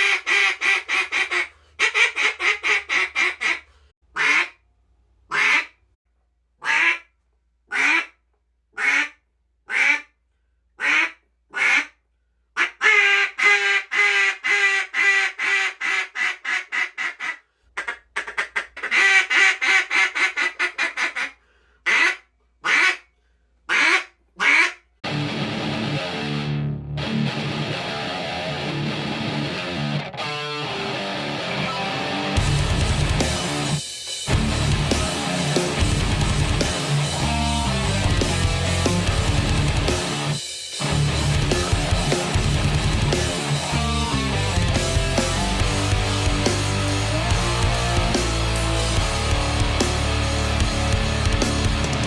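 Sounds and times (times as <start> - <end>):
duck call quacks: 0.0 - 4.6, 5.3 - 5.8, 6.6 - 7.1, 7.7 - 8.2, 8.8 - 10.2, 10.8 - 12.0, 12.6 - 23.1, 23.7 - 24.9.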